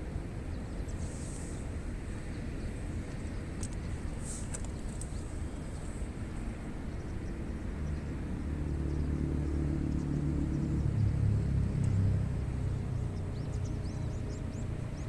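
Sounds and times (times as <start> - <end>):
vehicle engine rumble: 0.0 - 15.0
faint high clicks: 3.5 - 5.2.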